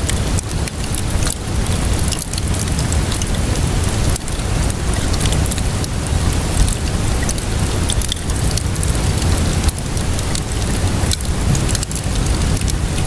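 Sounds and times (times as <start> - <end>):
steady rainfall: 0.0 - 13.0
wood fire crackling: 0.0 - 13.0.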